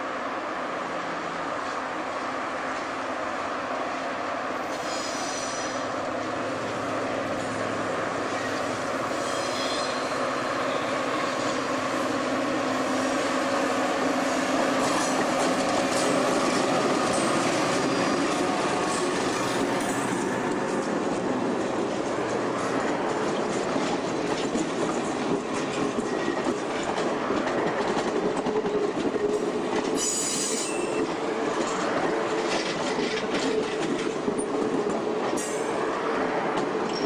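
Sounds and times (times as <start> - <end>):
diesel locomotive approaching: 0.0 - 37.0
train wheels clicking on rail joints: 4.6 - 10.2, 14.1 - 37.0.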